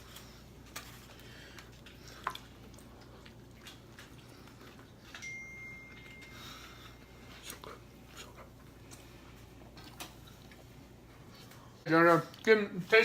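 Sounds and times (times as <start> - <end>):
steady high tone: 5.1 - 7.5.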